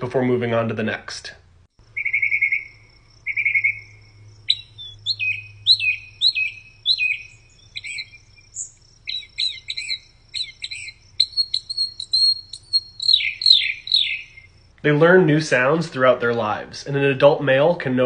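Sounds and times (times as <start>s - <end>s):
mockingbird singing: 1.8s - 15.4s.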